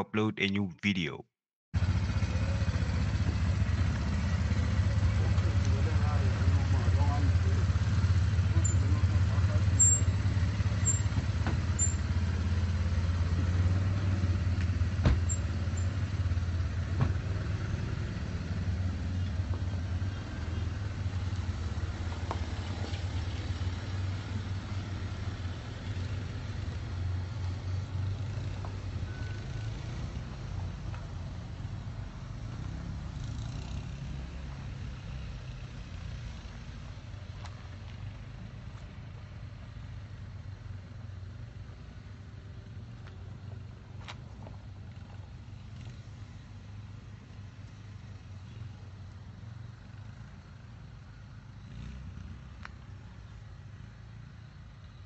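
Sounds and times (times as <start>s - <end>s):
vehicle engines rumbling: 1.8s - 55.0s.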